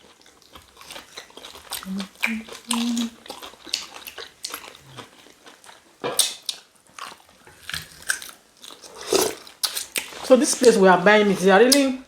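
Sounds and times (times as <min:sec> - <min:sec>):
people chewing and sucking: 0:00.0 - 0:10.8
wet mouth clicks and smacks: 0:02.0 - 0:03.2.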